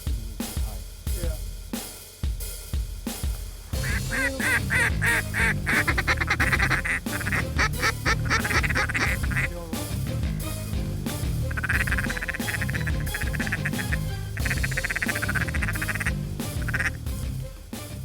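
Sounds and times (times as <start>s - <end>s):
background music with bass line: 0.0s - 18.0s
duck quacking: 3.8s - 9.8s, 11.4s - 17.0s.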